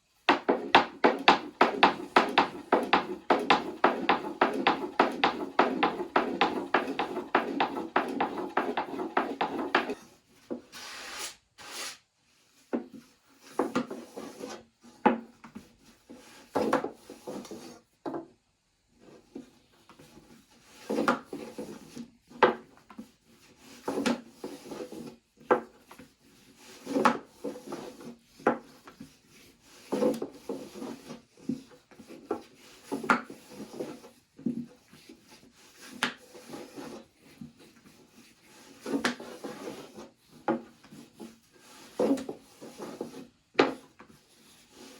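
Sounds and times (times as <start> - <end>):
wood knocking: 0.3 - 10.0
wood scraping: 0.3 - 12.0, 34.9 - 44.9.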